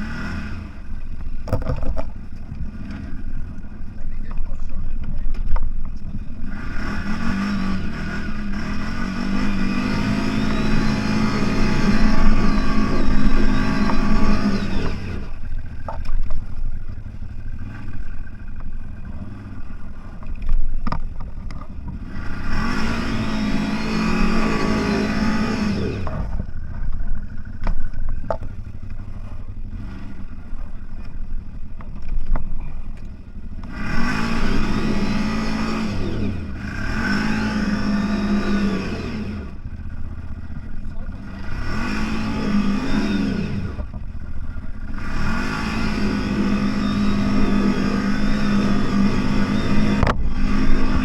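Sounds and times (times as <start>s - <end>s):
off-road vehicle engine revving: 0.0s - 51.0s
knocks and clatter: 1.2s - 2.6s.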